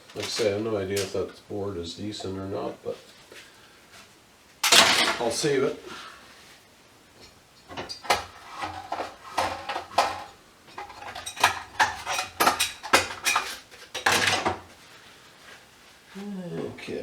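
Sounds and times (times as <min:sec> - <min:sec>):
tools clinking on workbench: 0:04.6 - 0:05.4.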